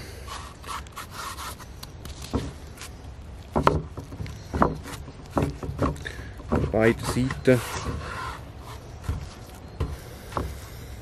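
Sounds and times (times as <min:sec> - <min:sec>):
steak thudding on wooden board: 0:02.0 - 0:02.6, 0:03.4 - 0:10.6.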